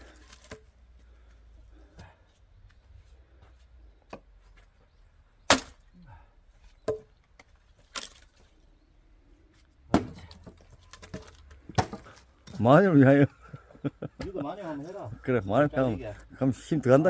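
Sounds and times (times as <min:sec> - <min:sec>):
axe splitting firewood: 0:00.0 - 0:00.9, 0:05.4 - 0:05.8, 0:06.8 - 0:08.4, 0:09.8 - 0:12.6.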